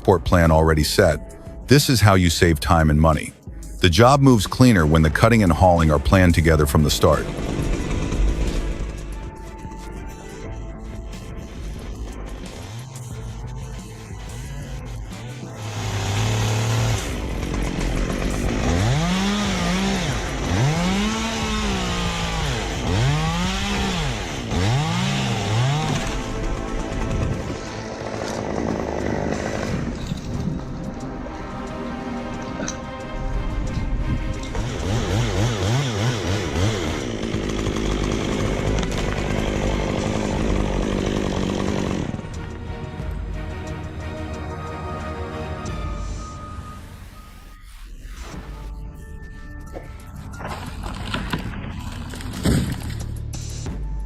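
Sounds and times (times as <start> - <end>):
chainsaw engine idling and revving: 4.0 - 9.8, 11.4 - 30.4, 31.4 - 44.9.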